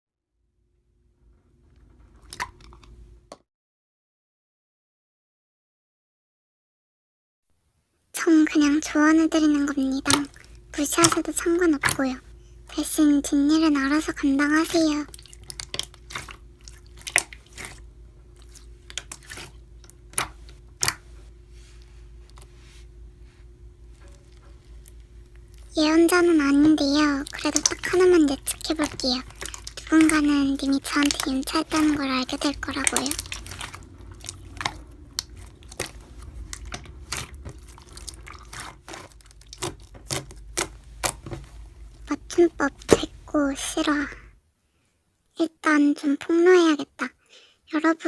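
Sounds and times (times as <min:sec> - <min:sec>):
slime squished by hand: 0:09.4 - 0:12.2, 0:14.5 - 0:21.2, 0:24.0 - 0:43.3.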